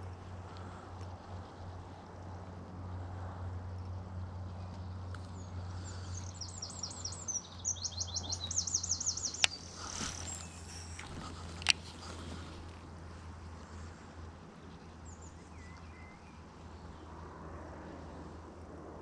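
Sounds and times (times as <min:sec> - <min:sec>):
steady low hum: 0:00.0 - 0:19.0
songbird singing: 0:04.4 - 0:13.1, 0:13.7 - 0:17.2.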